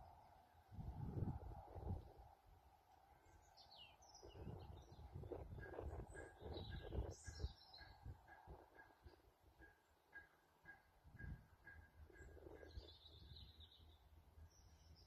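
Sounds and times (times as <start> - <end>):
outdoor background rumble: 0.0 - 8.7
small birds chirping: 3.3 - 9.2, 12.2 - 15.0.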